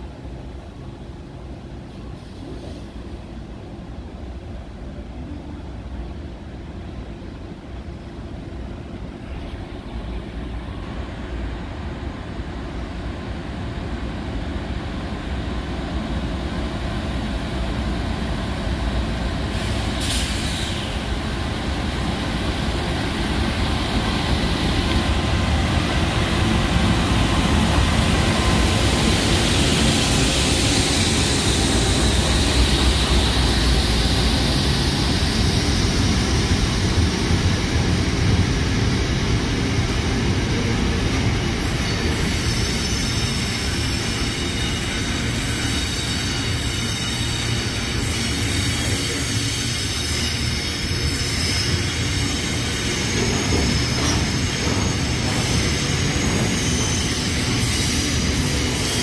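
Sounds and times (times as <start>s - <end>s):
diesel locomotive engine: 0.0s - 59.0s
high wheel and rail noise: 0.0s - 59.0s
air hiss: 19.5s - 21.1s.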